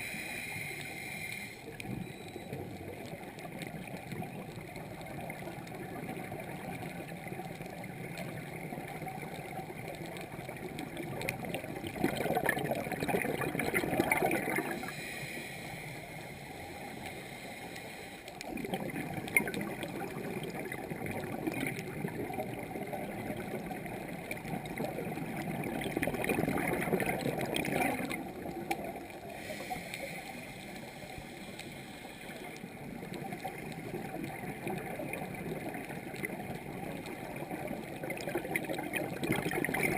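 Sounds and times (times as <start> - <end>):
underwater hiss: 0.0 - 1.8, 14.1 - 18.4, 28.1 - 33.7
regulator bubbles gurgling underwater: 0.0 - 39.9.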